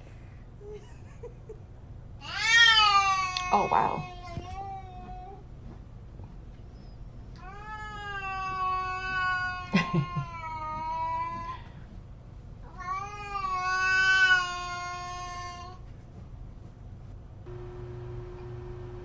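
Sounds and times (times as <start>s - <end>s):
cat yowling meows: 7.4s - 10.8s, 12.7s - 15.8s.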